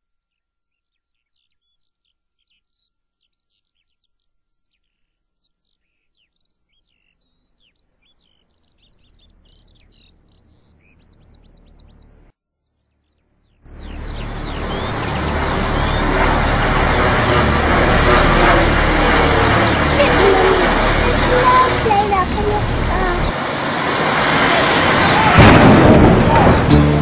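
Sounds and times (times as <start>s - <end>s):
small birds chirping: 0.0s - 25.2s
loud sound: 13.7s - 27.0s
low rumble: 13.7s - 27.0s.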